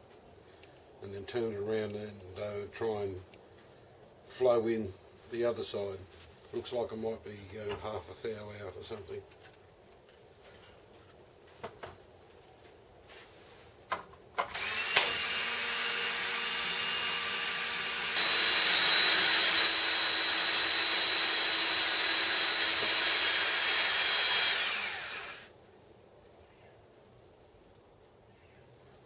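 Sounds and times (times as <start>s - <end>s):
power tool clicks: 14.4s - 25.4s
power tool motor whining: 14.5s - 25.5s.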